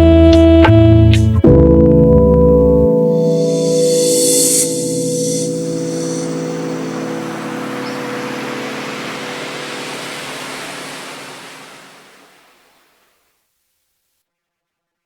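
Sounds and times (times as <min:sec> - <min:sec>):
ocean surf: 0:03.2 - 0:13.2.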